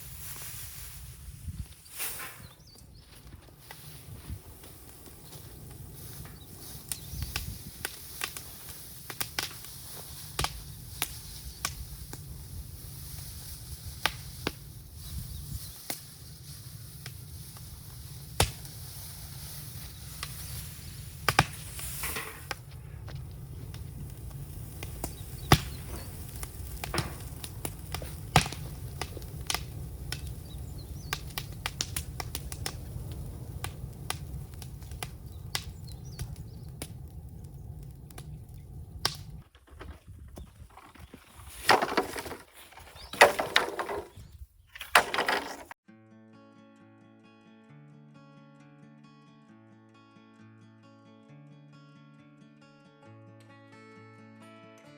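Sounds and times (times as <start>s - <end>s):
low fire rumble: 0.0s - 41.7s
bamboo crackling in fire: 0.0s - 45.8s
loud pops: 17.0s - 19.0s, 19.9s - 39.4s.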